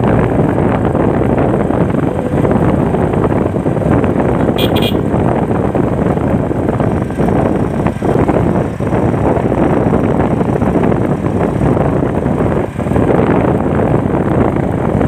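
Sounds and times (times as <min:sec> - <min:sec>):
road noise: 0:00.0 - 0:15.0
wind rush on microphone: 0:00.0 - 0:15.0
horn beeps: 0:04.4 - 0:05.1.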